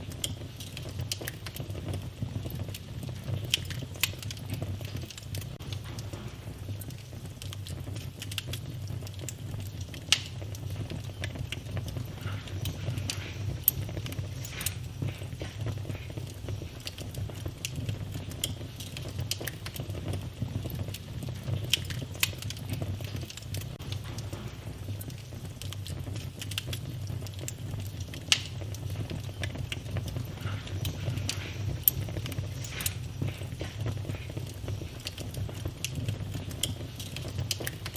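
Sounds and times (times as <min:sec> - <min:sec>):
wood fire crackling and popping: 0:00.0 - 0:37.9.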